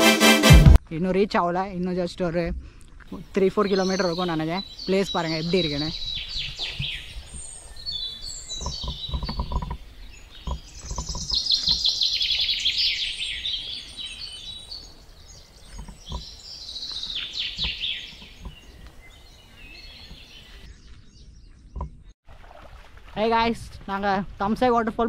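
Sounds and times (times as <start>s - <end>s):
wild birds singing: 2.9s - 23.4s
low thuds: 5.6s - 12.0s.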